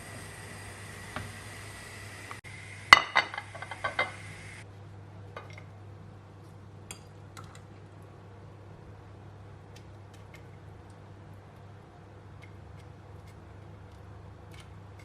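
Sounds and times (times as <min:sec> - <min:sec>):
kitchenware clinking: 0:02.9 - 0:04.4.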